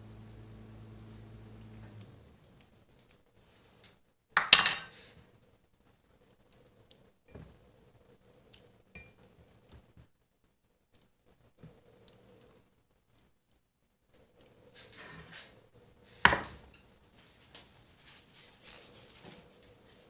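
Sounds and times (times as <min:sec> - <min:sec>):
dishes and utensils clattering: 0:04.4 - 0:05.2.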